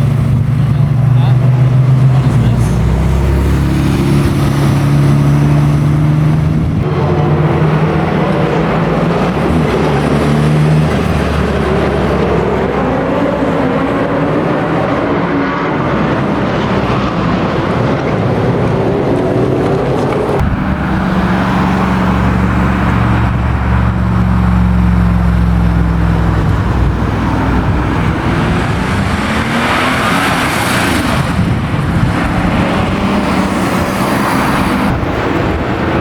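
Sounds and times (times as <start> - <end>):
car engine accelerating: 0.0 - 36.0
car engine revving: 0.0 - 36.0
deep engine rumbling: 0.0 - 36.0.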